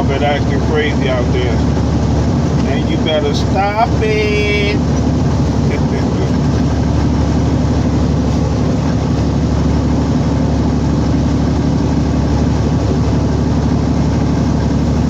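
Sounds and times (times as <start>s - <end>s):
diesel truck engine drone: 0.0s - 15.0s.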